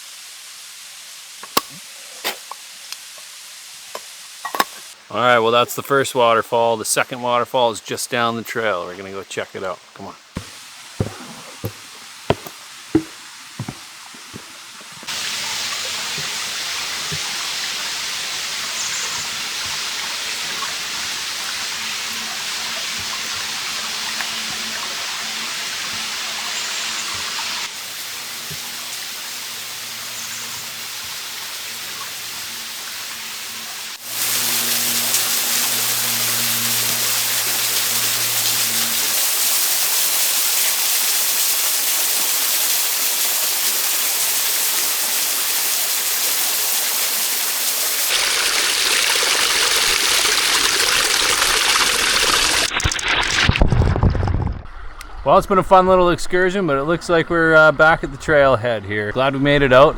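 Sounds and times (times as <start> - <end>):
waterfall rushing: 46.5 - 53.6.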